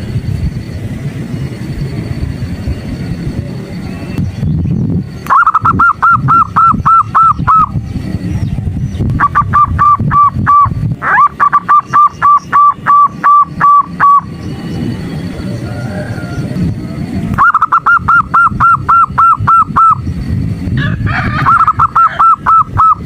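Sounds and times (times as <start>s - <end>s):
dove calling in rapid notes: 4.5s - 14.9s, 15.5s - 23.0s.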